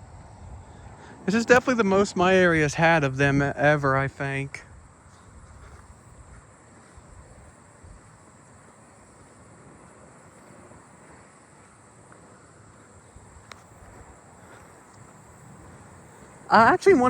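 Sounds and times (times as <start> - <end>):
wind rumble on microphone: 0.0 - 4.0, 4.6 - 8.2
insects singing: 0.0 - 17.0.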